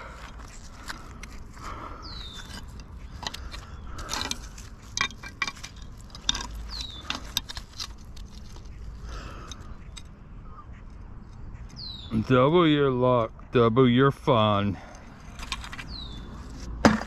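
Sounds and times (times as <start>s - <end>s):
scrap metal clinking and scraping: 0.0s - 10.1s, 14.8s - 17.0s
bird chirps: 1.7s - 4.2s, 5.8s - 7.5s, 8.7s - 13.7s, 15.8s - 16.5s.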